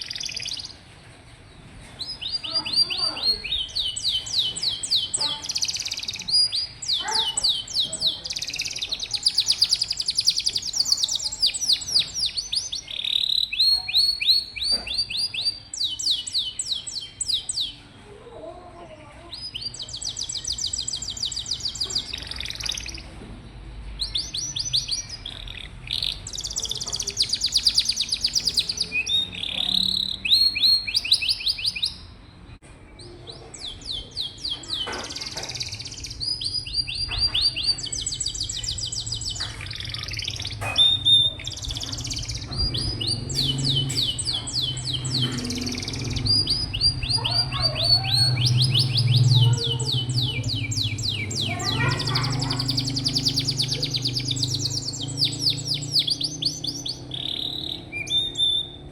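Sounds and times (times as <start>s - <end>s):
canary singing trills: 0.0s - 0.9s, 1.7s - 58.9s.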